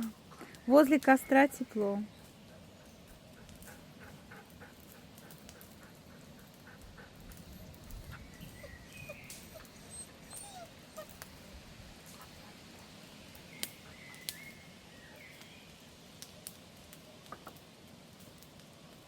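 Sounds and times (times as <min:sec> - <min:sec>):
bonfire crackling: 0:00.0 - 0:19.0
dog whining faintly: 0:06.7 - 0:11.5.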